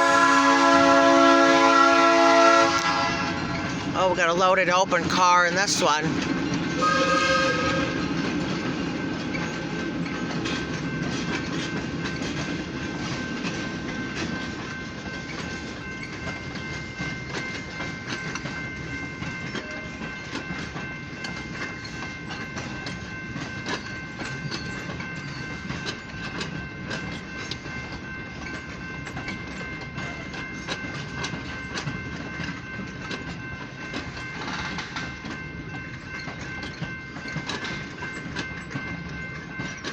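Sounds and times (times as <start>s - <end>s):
locomotive horn blast: 0.0s - 3.6s, 6.8s - 8.1s
grade-crossing bells ringing: 0.0s - 39.9s
train wheels clickety-clack: 0.0s - 39.9s.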